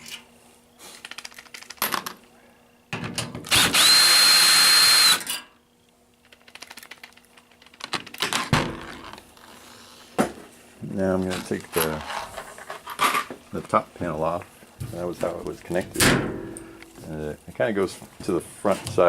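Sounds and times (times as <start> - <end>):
cordless drill whirring: 3.5 - 5.3.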